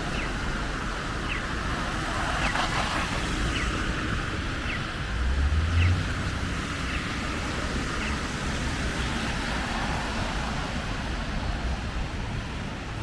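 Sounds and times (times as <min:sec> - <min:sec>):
engine rumble of passing vehicle: 0:00.0 - 0:13.0.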